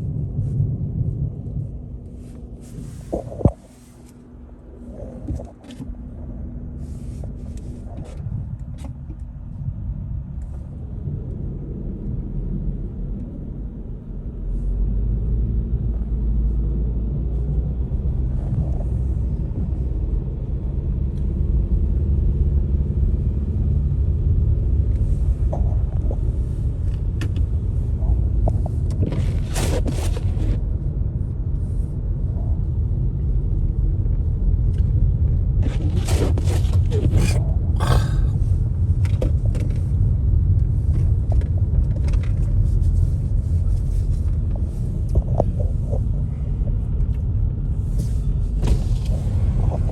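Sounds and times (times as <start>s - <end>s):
car road and engine rumble: 0.0s - 49.9s
brief scraping sounds: 29.0s - 30.6s, 35.6s - 38.0s.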